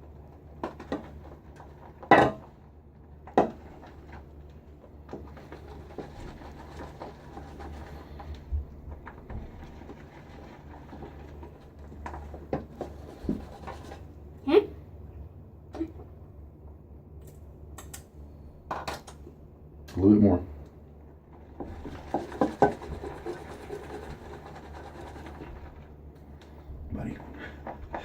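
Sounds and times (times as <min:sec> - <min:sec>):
brush whipping lather in bowl: 0:05.2 - 0:08.3, 0:09.6 - 0:14.1, 0:21.6 - 0:25.9.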